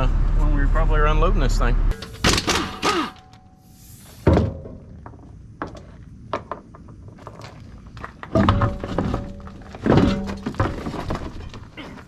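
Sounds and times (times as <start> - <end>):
heavy thunk: 2.1 - 3.2.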